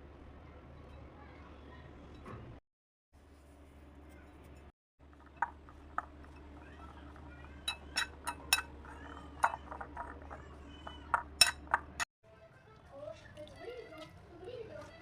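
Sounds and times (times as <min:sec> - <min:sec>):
utensils clinking on dishes: 0:05.1 - 0:12.0.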